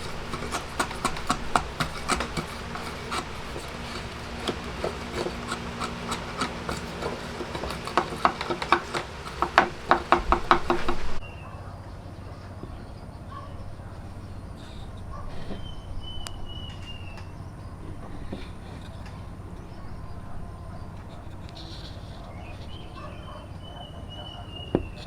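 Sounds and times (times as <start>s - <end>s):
hand tool scraping wood: 0.0s - 11.2s, 17.9s - 19.7s, 20.7s - 23.4s.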